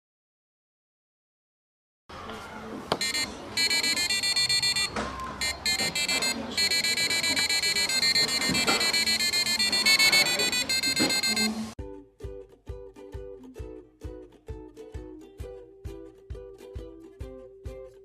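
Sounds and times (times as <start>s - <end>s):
background hubbub: 2.1s - 11.8s
buzzy electronic beeps: 3.0s - 11.8s.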